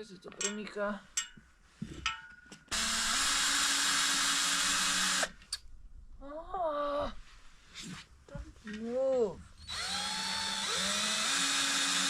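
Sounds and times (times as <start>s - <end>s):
power drill running: 2.7s - 5.4s, 9.6s - 12.0s.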